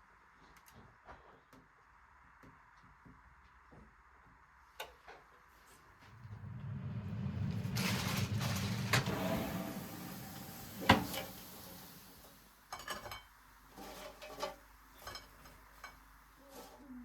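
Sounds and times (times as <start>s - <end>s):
low rushing noise: 6.1s - 12.3s.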